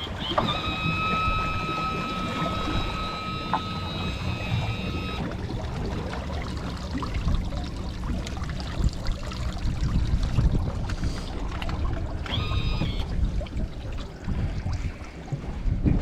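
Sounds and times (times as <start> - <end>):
water trickling and splashing: 0.0 - 16.0
steady low rumble: 3.8 - 12.3.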